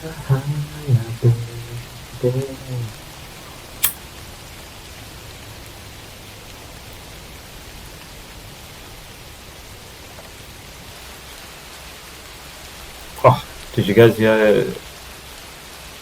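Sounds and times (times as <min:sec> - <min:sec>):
steady background hiss: 0:00.0 - 0:16.0
sharp click: 0:03.8 - 0:04.0.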